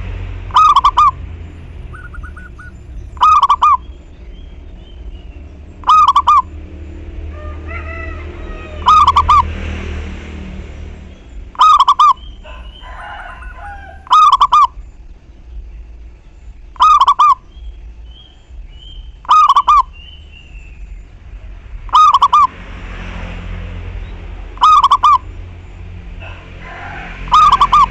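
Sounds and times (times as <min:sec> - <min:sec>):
dove cooing: 0:00.5 - 0:01.2, 0:01.8 - 0:03.8, 0:05.8 - 0:06.5, 0:11.6 - 0:14.8, 0:16.8 - 0:17.4, 0:19.2 - 0:19.9, 0:24.6 - 0:25.2, 0:26.2 - 0:27.9
faint bird chirps: 0:00.6 - 0:06.4, 0:11.1 - 0:22.5.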